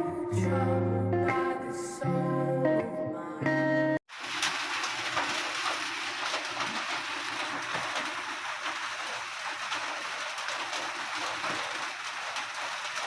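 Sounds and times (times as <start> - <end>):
music: 0.0 - 4.0
steady rain falling: 4.1 - 13.0.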